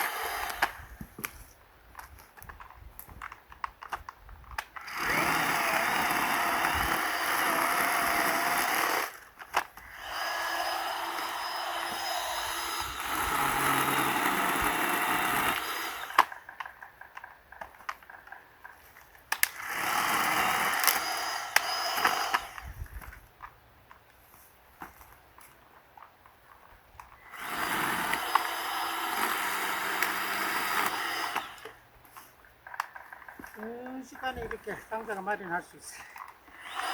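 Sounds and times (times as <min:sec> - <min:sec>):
mini saw cutting wood: 0:00.0 - 0:01.2, 0:04.6 - 0:17.3, 0:19.3 - 0:23.3, 0:27.1 - 0:36.9.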